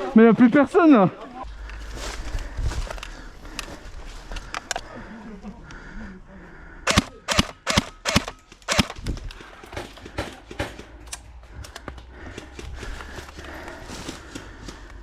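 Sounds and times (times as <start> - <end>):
airsoft gun shots: 6.9 - 9.0
gun clicks: 6.9 - 9.5.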